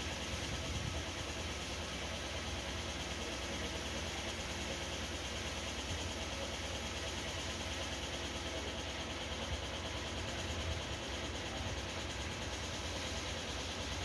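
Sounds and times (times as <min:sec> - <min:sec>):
low mechanical rumble: 0:00.0 - 0:04.2.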